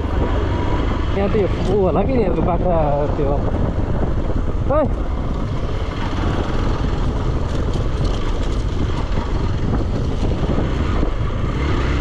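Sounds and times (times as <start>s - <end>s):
motorcycle engine running: 0.0s - 12.0s
wind rumbling on microphone: 0.0s - 12.0s.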